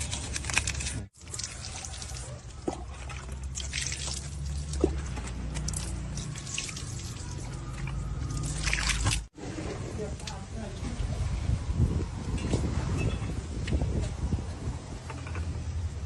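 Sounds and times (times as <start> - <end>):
water pouring and dripping: 0.0 - 9.4.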